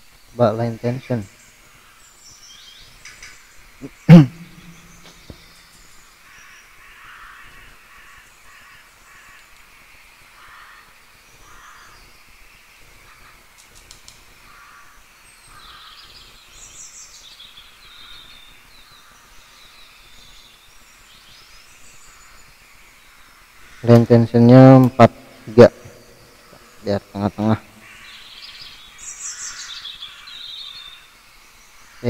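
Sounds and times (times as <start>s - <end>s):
faint birds calling: 0.0s - 32.0s
high bird chirps: 1.2s - 6.6s.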